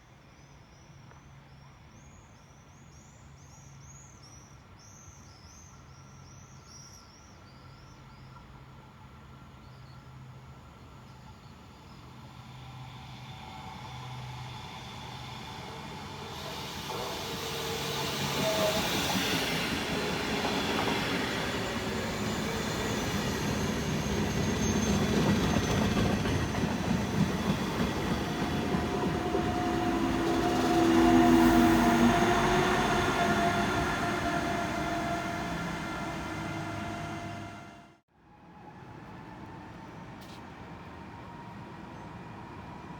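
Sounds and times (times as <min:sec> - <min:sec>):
train wheels rumbling on rails: 0:12.2 - 0:37.9
steady whining tones: 0:27.8 - 0:38.0.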